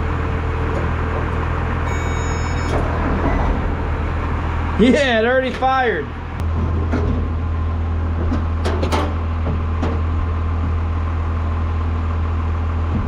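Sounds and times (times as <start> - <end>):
backhoe engine running: 0.0 - 13.0.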